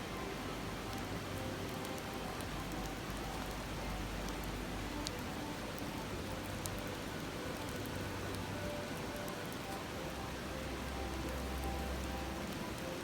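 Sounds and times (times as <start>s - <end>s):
river water babbling: 0.0s - 13.0s.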